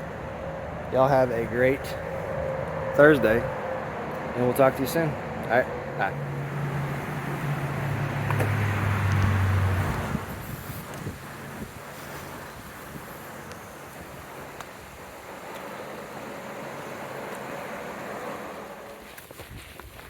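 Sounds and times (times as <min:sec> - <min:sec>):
vehicle passing rush: 0:00.0 - 0:19.2
vehicle engine hum: 0:00.0 - 0:19.8.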